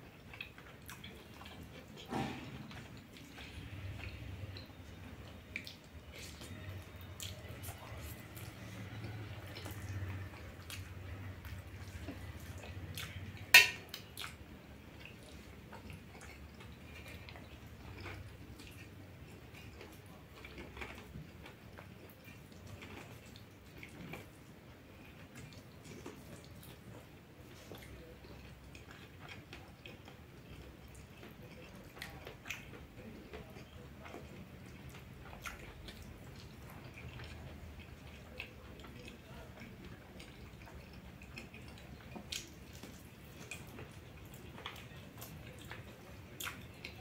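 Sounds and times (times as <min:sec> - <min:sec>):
wet chewing: 0:00.0 - 0:47.0.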